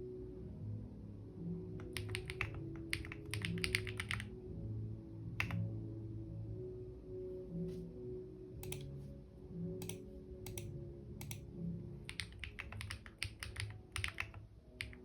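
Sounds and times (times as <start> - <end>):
background music: 0.0 - 15.0
computer keyboard typing: 1.8 - 4.3, 5.4 - 5.6, 8.6 - 8.9, 9.8 - 11.4, 12.1 - 15.0.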